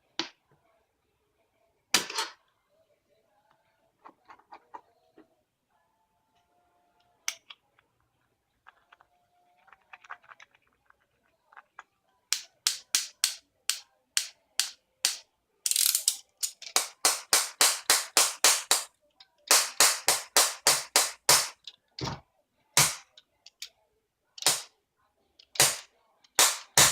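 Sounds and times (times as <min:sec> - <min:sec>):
strikes on glass screen protector: 0:22.8 - 0:23.0.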